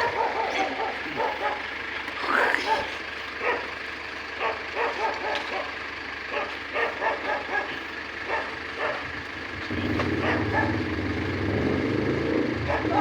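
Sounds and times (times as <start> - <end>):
dog barking: 0.0 - 1.8, 2.5 - 3.8, 4.4 - 9.2, 10.0 - 11.0, 12.6 - 13.0
truck engine running: 0.0 - 13.0.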